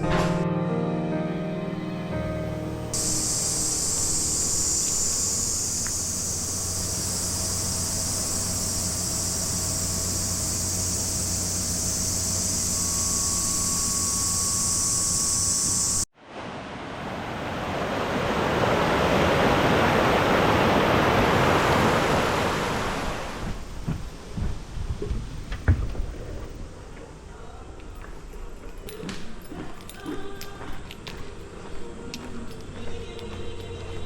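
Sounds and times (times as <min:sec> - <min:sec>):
high-pitched insect chorus: 0:02.9 - 0:16.1
flowing water rushing: 0:16.2 - 0:23.7.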